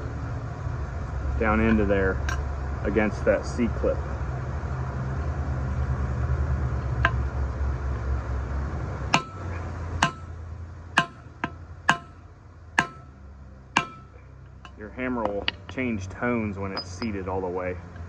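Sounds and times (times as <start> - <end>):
low background rumble: 0.0 - 18.0
hammer tapping metal: 9.2 - 10.4, 11.0 - 12.2, 12.8 - 13.2, 13.8 - 15.8.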